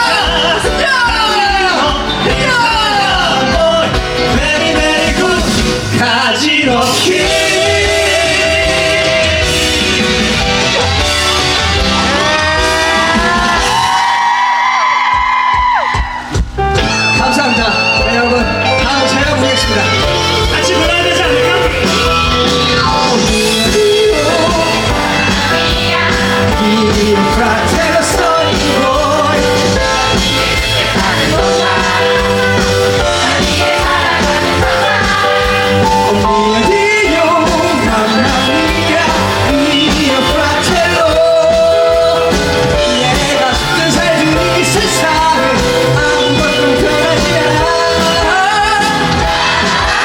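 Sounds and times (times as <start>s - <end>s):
audience singing along: 0.0s - 15.0s, 19.8s - 50.0s
live band playing rock song: 0.0s - 50.0s
cast singing: 17.9s - 50.0s.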